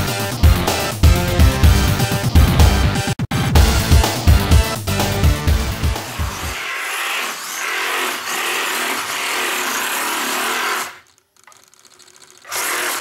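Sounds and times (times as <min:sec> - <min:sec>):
toy car electric motor whirring: 0:06.1 - 0:13.0.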